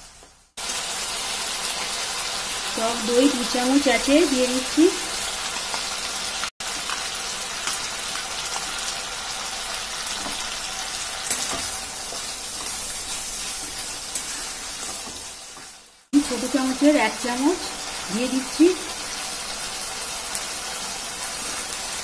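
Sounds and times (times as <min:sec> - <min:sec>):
masala sizzling in hot oil: 0:00.0 - 0:22.0
metal spatula scraping: 0:11.2 - 0:15.8.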